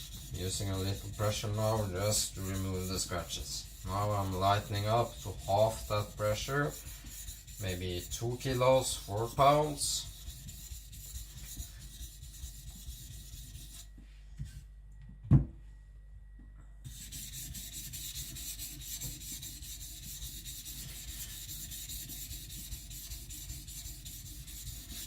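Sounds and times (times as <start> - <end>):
blade scraping on whetstone: 0.0 - 13.9
thump: 15.2 - 15.6.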